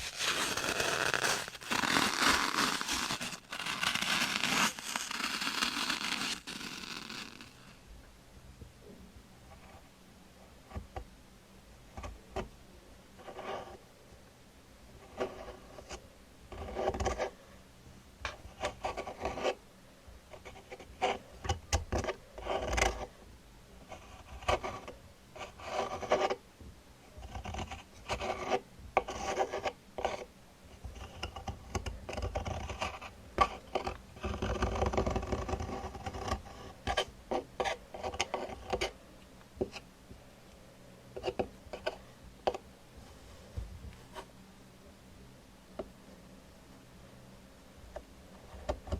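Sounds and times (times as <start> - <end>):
rubbing and scratching on a surface: 0.0 - 7.8, 13.2 - 13.8, 14.9 - 17.4, 18.3 - 19.6, 20.3 - 23.2, 23.8 - 26.4, 27.2 - 39.0.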